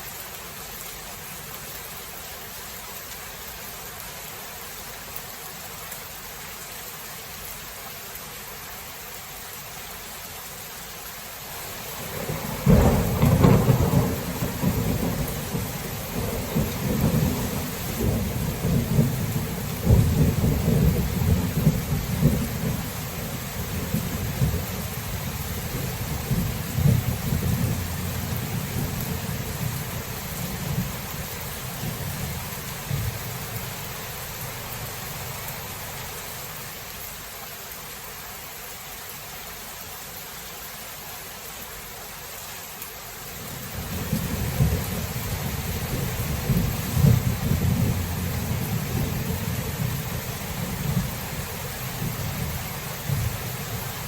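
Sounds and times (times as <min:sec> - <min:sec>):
rain hiss: 0:00.0 - 0:54.0
rolling rumble of thunder: 0:12.0 - 0:34.5, 0:43.5 - 0:53.9
thunderclap: 0:12.1 - 0:22.9, 0:25.7 - 0:29.8, 0:45.7 - 0:50.0.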